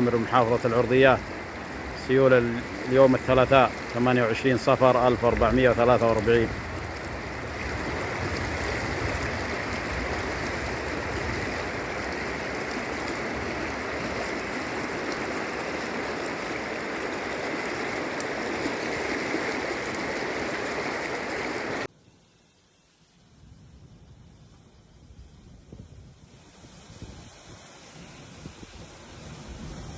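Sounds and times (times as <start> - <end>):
floodwater rushing: 0.0 - 21.9.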